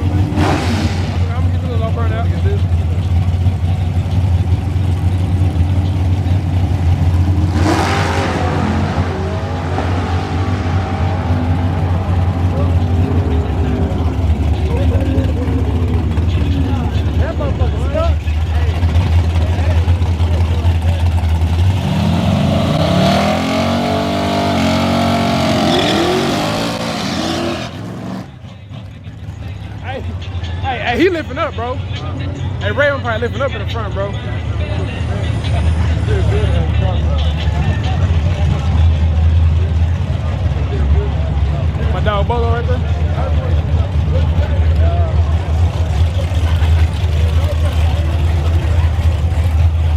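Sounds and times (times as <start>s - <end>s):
car accelerating hard: 0.0s - 28.9s
car engines rumbling: 0.0s - 49.9s.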